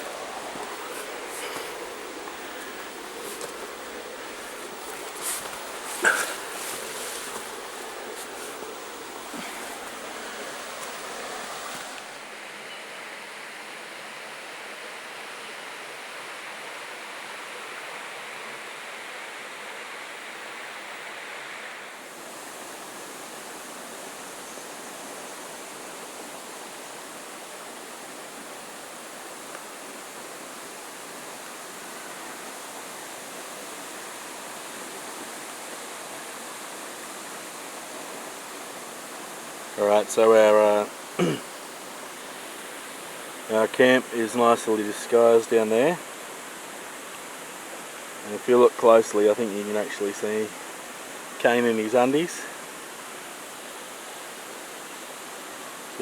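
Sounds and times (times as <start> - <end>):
waterfall rushing: 0.0 - 12.4.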